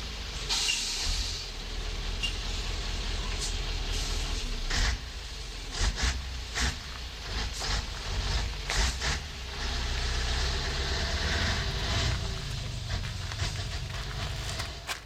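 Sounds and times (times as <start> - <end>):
truck diesel engine idling: 0.0 - 15.0
short air hisses: 0.5 - 1.4.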